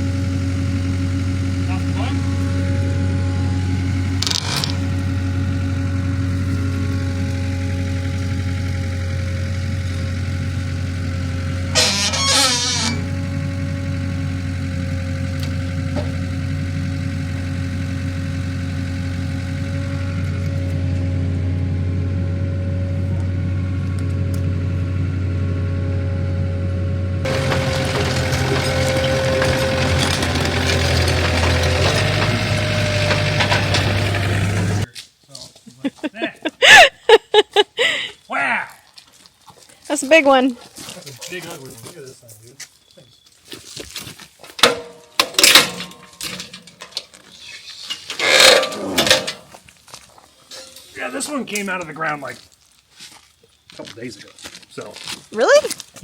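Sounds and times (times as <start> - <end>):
forklift engine idling: 0.0 - 34.9
wood scraping and crackling: 0.7 - 21.0, 27.2 - 35.6, 43.4 - 56.0.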